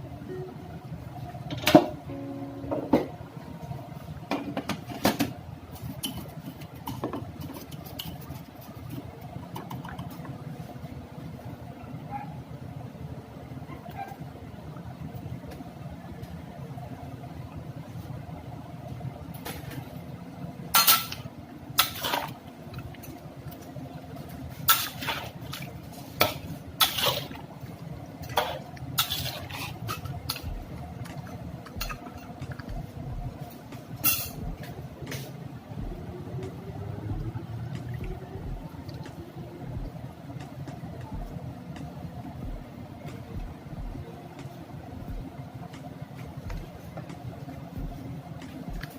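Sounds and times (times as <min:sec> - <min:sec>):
steady low hum: 0:00.0 - 0:48.9
metal utensil scraping a pot: 0:28.3 - 0:30.4.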